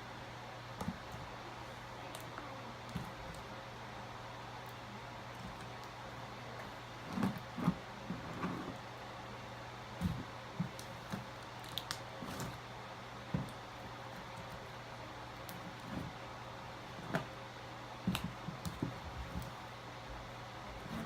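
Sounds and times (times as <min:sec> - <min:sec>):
slime squishing: 0:18.0 - 0:19.6.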